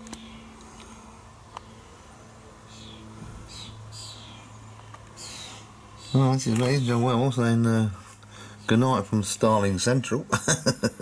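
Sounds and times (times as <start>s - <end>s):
low steady hum: 0.0s - 11.0s
starlings calling: 2.6s - 7.6s.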